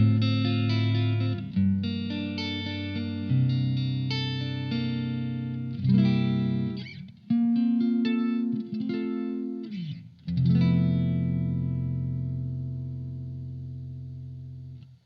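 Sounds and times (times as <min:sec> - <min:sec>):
electric guitar chords ringing: 0:00.0 - 0:14.9
scratchy pick noise: 0:00.0 - 0:15.0.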